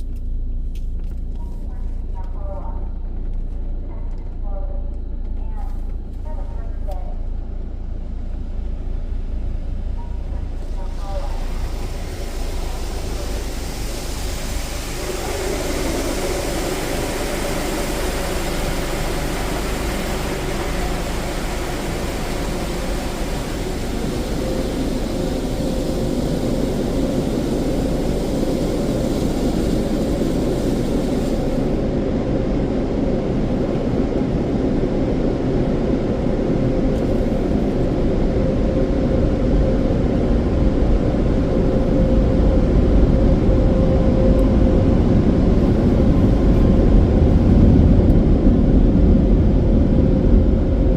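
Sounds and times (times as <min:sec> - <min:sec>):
car wash dryer blowers roaring: 0:00.0 - 0:50.9
high hiss: 0:10.4 - 0:31.9.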